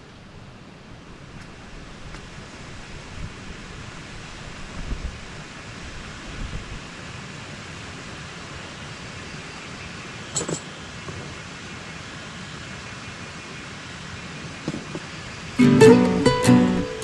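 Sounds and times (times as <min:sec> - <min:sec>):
wind and rain hiss: 0:00.0 - 0:09.5.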